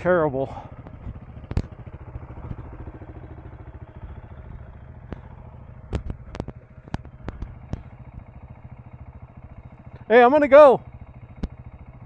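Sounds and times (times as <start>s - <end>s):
motorcycle engine running: 0.0s - 12.0s
sharp clicks: 5.0s - 7.9s.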